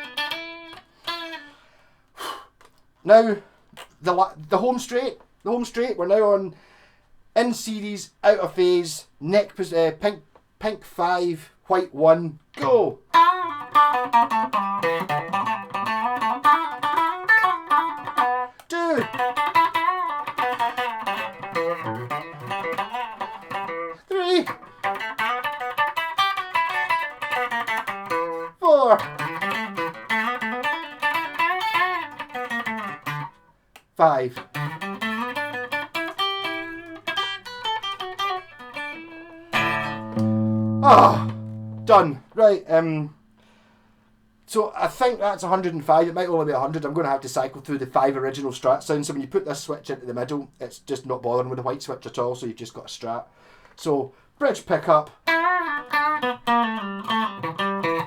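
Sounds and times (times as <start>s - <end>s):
electric guitar riff: 0.0s - 1.6s, 12.6s - 33.5s, 34.1s - 42.4s, 55.0s - 58.0s
low guitar chord ringing: 37.9s - 42.2s.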